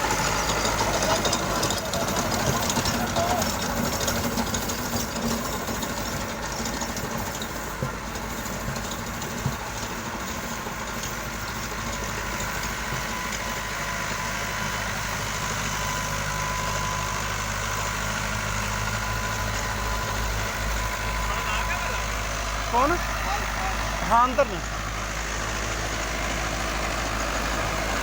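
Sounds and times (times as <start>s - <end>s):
tractor diesel engine idling: 0.0s - 28.0s.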